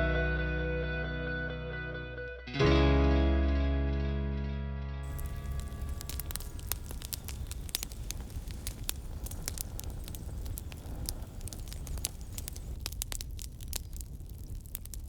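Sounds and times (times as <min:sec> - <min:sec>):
campfire crackling: 0:05.0 - 0:15.0.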